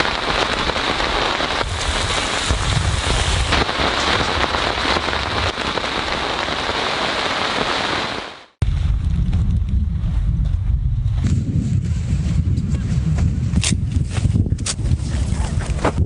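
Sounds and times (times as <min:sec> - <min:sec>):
low wind rumble: 0:00.0 - 0:07.3, 0:08.2 - 0:16.0
rain falling on a surface: 0:00.0 - 0:08.6.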